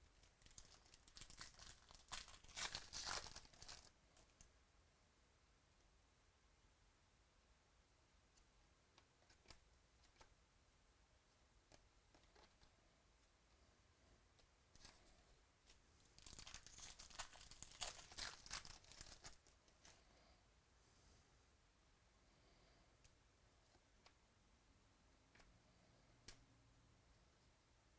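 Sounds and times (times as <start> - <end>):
card pack wrapper tearing: 0.5 - 3.9, 16.2 - 19.4.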